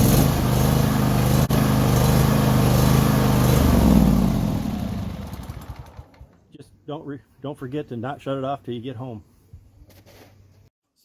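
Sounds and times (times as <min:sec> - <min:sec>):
tractor engine running: 0:00.0 - 0:06.5.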